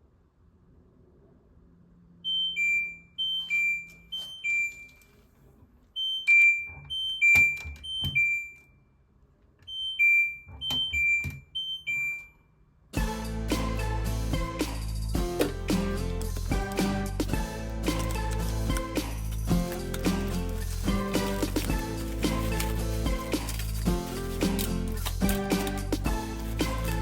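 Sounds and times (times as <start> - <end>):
music: 13.0 - 27.0.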